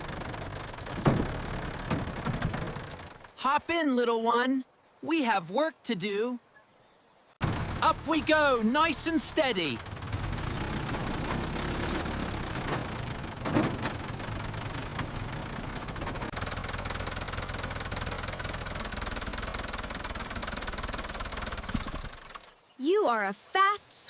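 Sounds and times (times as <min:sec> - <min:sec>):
motor boat engine running: 0:00.0 - 0:03.4, 0:07.4 - 0:22.6.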